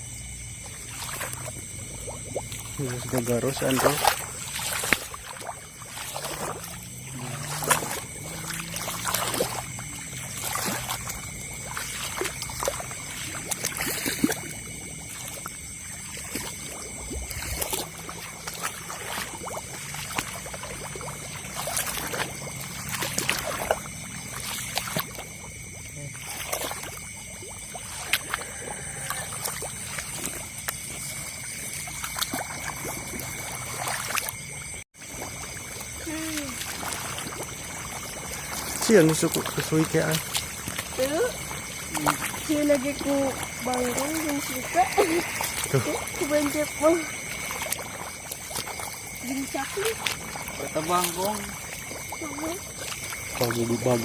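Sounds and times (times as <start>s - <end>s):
chorus of night creatures: 0.0s - 54.0s
water sloshing as someone wades: 0.0s - 54.0s.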